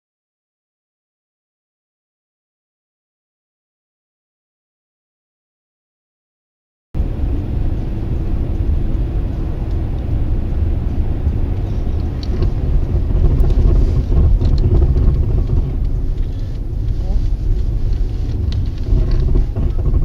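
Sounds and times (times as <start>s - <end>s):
car road and engine rumble: 7.0s - 20.0s.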